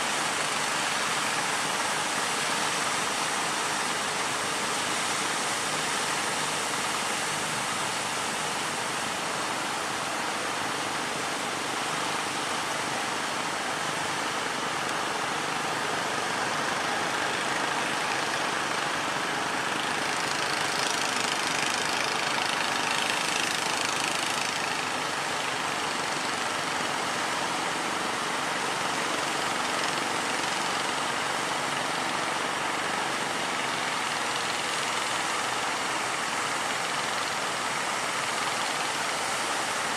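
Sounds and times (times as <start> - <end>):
boat engine running: 11.8 - 39.9.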